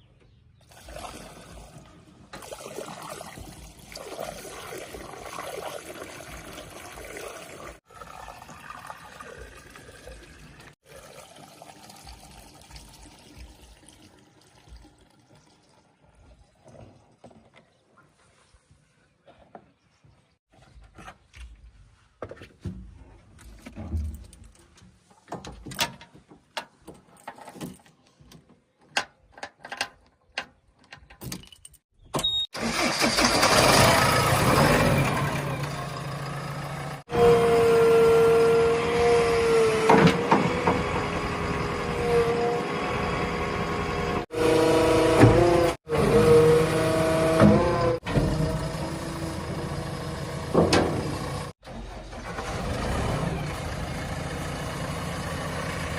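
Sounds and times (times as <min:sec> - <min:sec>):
diesel engine running loudly: 0:33.4 - 0:51.5.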